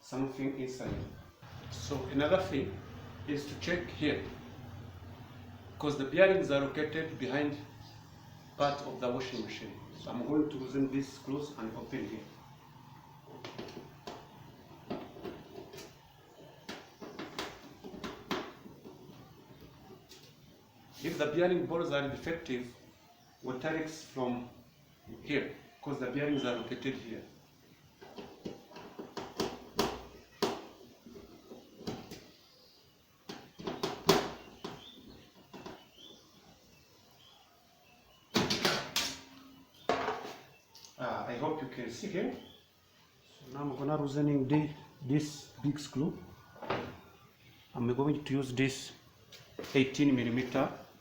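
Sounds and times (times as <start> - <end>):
knocks and clatter of tools: 13.4 - 19.5, 28.0 - 32.3, 33.3 - 35.9, 38.3 - 40.5.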